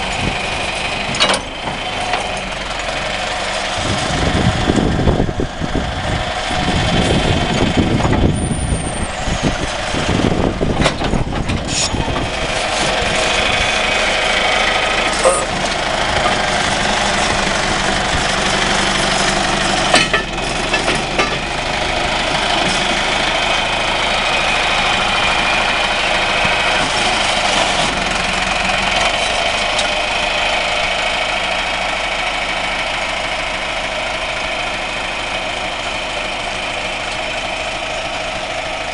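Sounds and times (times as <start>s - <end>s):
diesel engine running: 0.0s - 38.9s
sharp metallic knocks: 19.9s - 21.5s.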